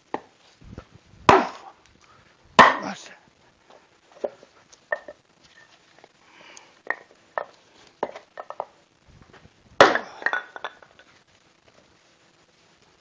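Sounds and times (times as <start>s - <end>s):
axe blow splitting log: 1.3s - 1.8s, 2.6s - 3.0s, 9.8s - 10.3s
wood clattering: 2.6s - 3.0s, 6.8s - 11.2s.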